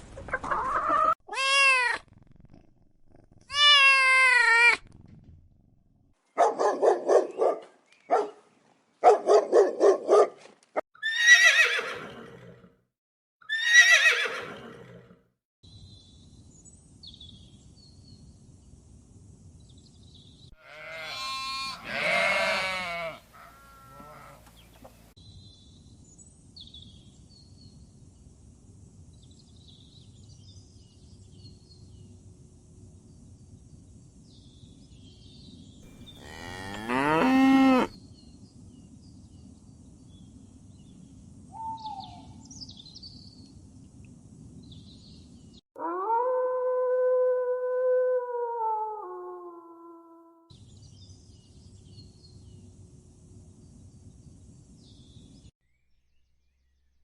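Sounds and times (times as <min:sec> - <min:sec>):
cow mooing: 0:20.6 - 0:24.5, 0:35.9 - 0:38.0.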